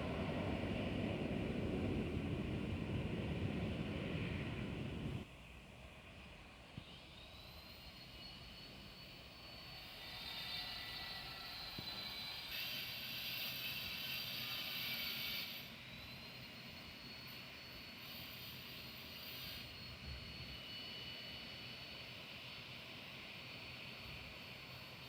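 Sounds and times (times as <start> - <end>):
high engine whine: 0.0 - 5.3
airplane engines rushing hiss: 0.0 - 25.0.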